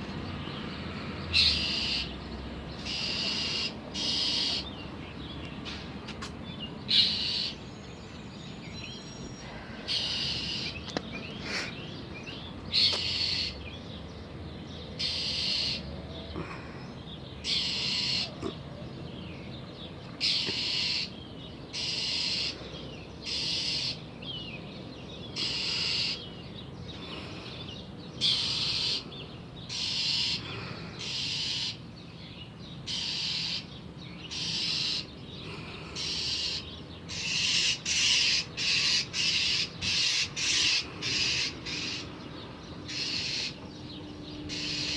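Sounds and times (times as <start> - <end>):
bird giving harsh scolding calls: 1.4 - 2.1, 2.8 - 4.7, 6.9 - 7.6, 9.9 - 10.8, 15.0 - 15.8, 17.4 - 18.4, 20.2 - 21.2, 25.4 - 26.3, 28.2 - 29.0, 29.7 - 30.4, 31.0 - 31.8, 32.9 - 33.7, 34.3 - 35.1, 36.0 - 42.1, 42.9 - 43.6, 44.5 - 44.9.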